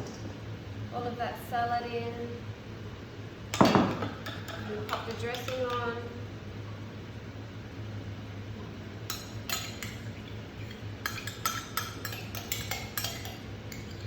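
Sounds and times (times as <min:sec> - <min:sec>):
spoon clinking on jar and bowl: 0:03.6 - 0:05.9, 0:09.1 - 0:14.0.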